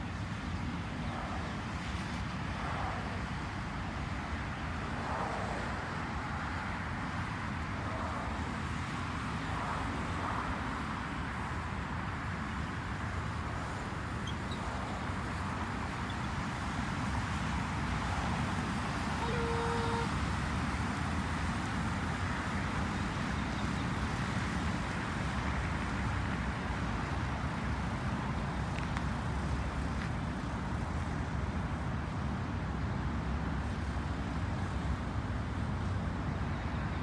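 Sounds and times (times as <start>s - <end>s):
road traffic rumble: 0.0s - 37.0s
wind: 0.0s - 37.0s.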